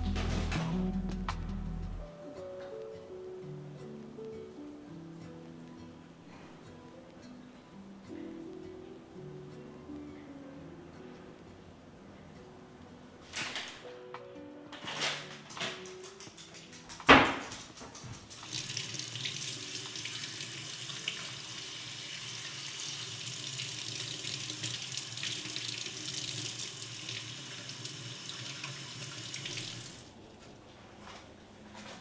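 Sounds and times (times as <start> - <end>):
tap water running into sink: 18.4 - 30.1.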